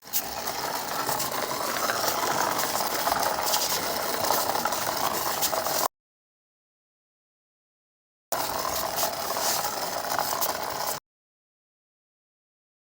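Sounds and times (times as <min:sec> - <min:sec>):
toy mechanism rattling and clicking: 0:00.0 - 0:05.9, 0:08.4 - 0:11.0.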